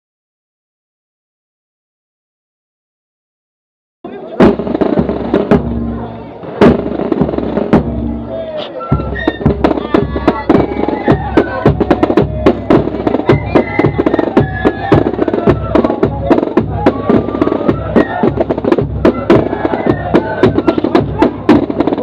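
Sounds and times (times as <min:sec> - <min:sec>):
snare drum rolls: 0:04.4 - 0:22.0
flute melody: 0:07.8 - 0:22.0.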